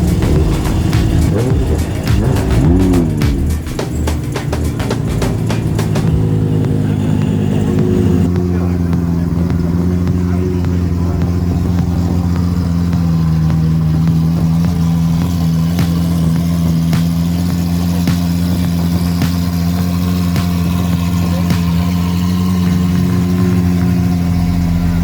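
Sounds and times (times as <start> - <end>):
car engine idling: 0.0 - 25.0
sharp ticks: 0.0 - 25.0.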